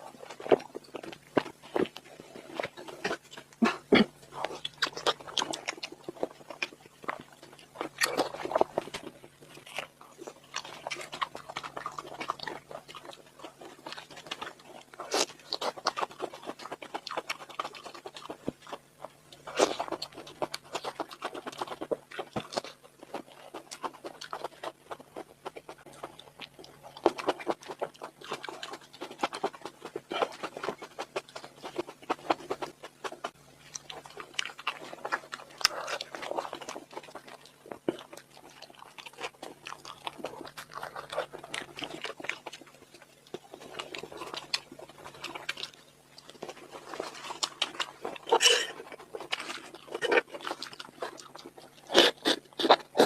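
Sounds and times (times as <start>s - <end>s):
chewing and biting: 0.0s - 53.0s
wet mouth noises: 46.3s - 53.0s.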